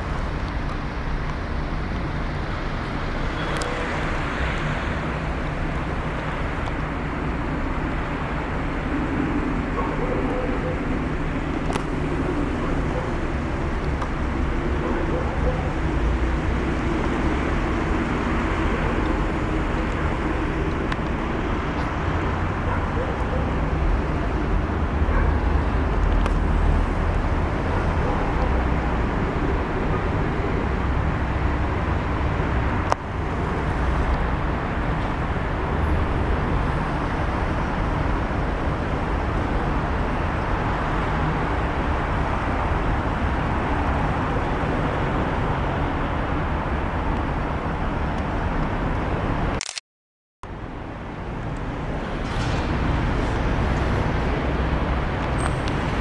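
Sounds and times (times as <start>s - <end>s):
sharp click: 49.5s - 49.8s.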